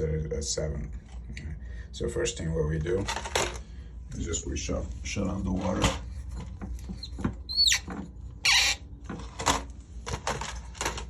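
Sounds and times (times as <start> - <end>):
valve squeaking: 6.9 - 8.9.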